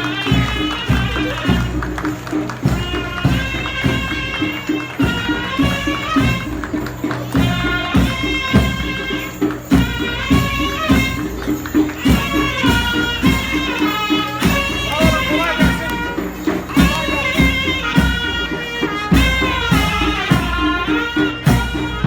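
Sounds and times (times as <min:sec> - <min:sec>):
drum beats: 0:00.0 - 0:22.0
shrill zurna melody: 0:00.0 - 0:22.0.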